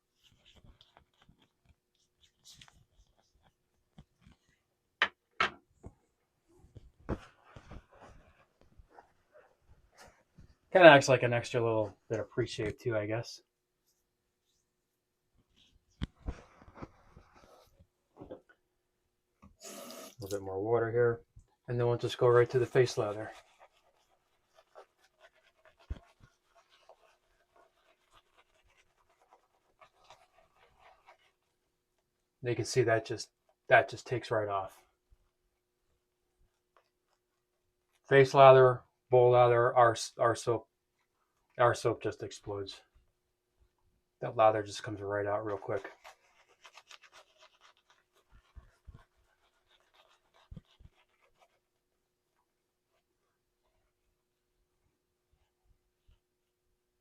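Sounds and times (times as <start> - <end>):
shaving brush scratching: 21.7 - 31.5, 44.4 - 51.8.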